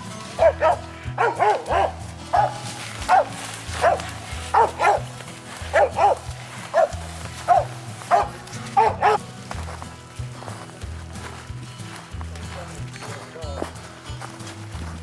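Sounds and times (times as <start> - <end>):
background music: 0.0 - 15.0
dog barking: 0.4 - 9.2.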